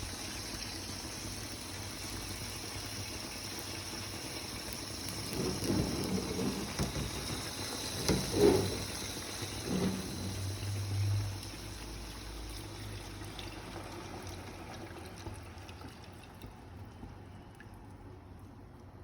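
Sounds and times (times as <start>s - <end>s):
liquid pouring: 3.2s - 17.9s.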